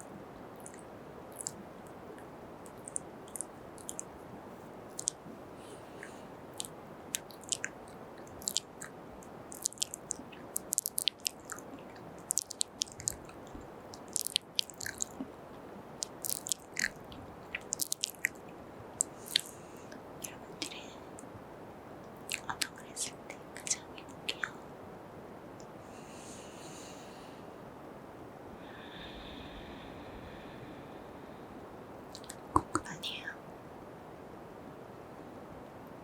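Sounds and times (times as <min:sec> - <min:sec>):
lip smacks: 0:00.0 - 0:04.2, 0:04.9 - 0:18.4, 0:19.0 - 0:21.3, 0:22.2 - 0:24.6, 0:32.1 - 0:33.0
mouth clicks: 0:00.0 - 0:04.2, 0:04.9 - 0:18.4, 0:19.0 - 0:21.3, 0:22.2 - 0:24.6, 0:32.1 - 0:33.3
faint steady hiss: 0:00.0 - 0:36.0
wet kisses: 0:01.4 - 0:01.6, 0:05.0 - 0:05.2, 0:06.6 - 0:08.9, 0:09.5 - 0:13.2, 0:14.0 - 0:15.3, 0:16.0 - 0:17.0, 0:17.6 - 0:18.4, 0:19.0 - 0:19.5, 0:32.1 - 0:32.9.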